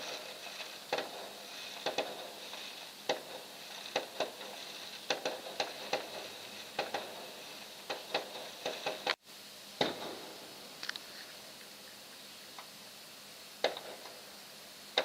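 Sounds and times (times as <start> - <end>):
fireworks popping and crackling: 0.0 - 9.2, 9.8 - 11.8, 13.6 - 14.3.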